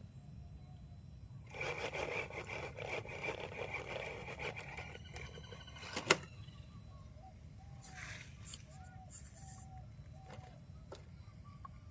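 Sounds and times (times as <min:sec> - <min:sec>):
toy car electric motor whine: 0:01.5 - 0:06.3.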